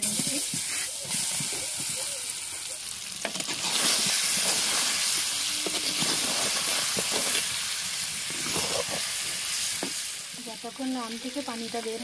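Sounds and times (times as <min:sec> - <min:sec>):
mangoes sizzling in hot oil: 0:00.0 - 0:12.0
wooden spatula scraping pot: 0:03.3 - 0:07.6, 0:08.3 - 0:09.3.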